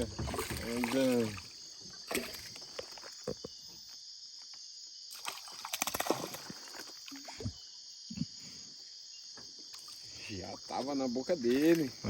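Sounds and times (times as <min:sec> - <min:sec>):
water sloshing against boat: 0:00.0 - 0:03.2
high-pitched insect chorus: 0:00.0 - 0:12.0.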